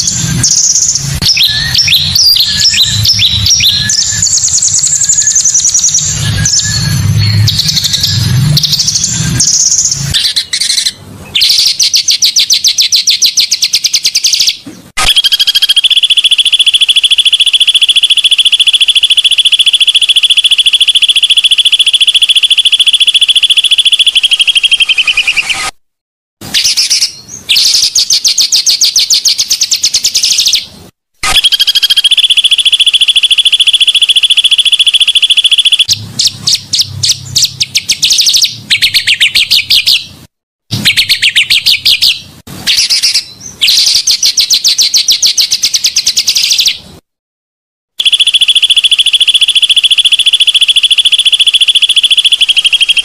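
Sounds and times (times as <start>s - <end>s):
bird high-pitched trills: 0.0s - 25.7s.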